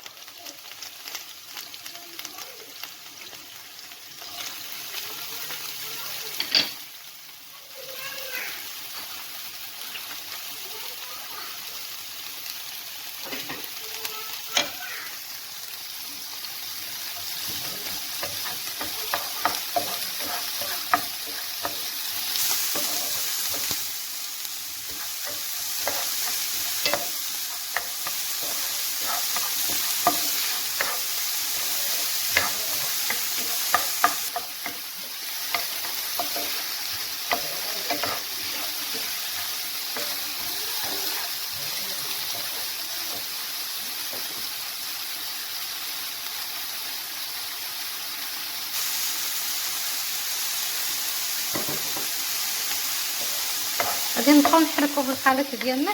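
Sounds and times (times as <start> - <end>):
vegetables sizzling in a frying pan: 0.0 - 55.9
utensil scraping a pan: 17.3 - 23.8, 24.9 - 41.2.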